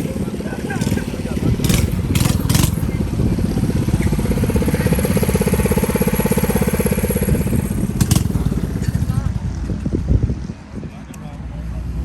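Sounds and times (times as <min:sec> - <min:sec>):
mini bike engine idling: 0:00.0 - 0:10.1.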